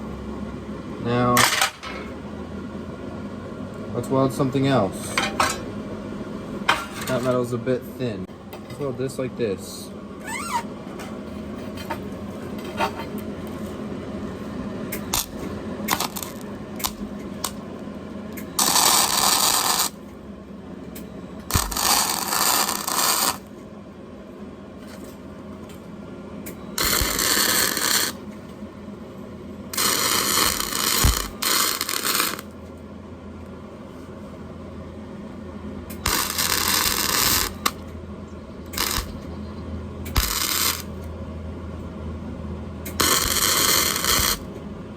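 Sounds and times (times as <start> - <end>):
welding arc crackling and hissing: 14.9 - 17.6, 18.4 - 20.0, 21.5 - 23.5, 26.8 - 28.2, 29.7 - 32.5, 36.0 - 37.8, 38.7 - 39.2, 40.1 - 41.0, 42.9 - 44.5.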